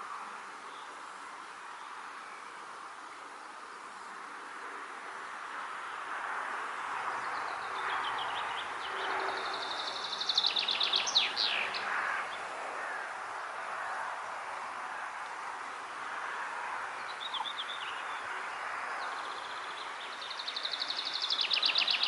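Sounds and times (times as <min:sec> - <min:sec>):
songbird trilling song: 0:07.3 - 0:11.9, 0:17.1 - 0:18.2, 0:19.0 - 0:22.0.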